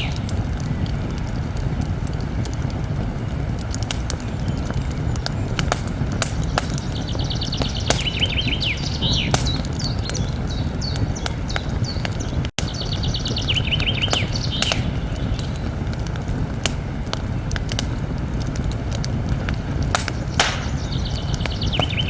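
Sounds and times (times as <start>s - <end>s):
campfire crackling and popping: 0.0s - 22.0s
songbird rapid repeated notes: 4.1s - 15.6s, 20.0s - 22.0s.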